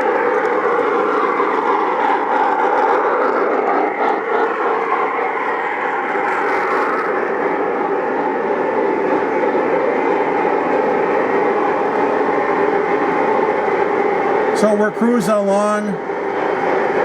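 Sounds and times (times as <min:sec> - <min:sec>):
model train wheels rumbling on rail: 0:02.2 - 0:13.4.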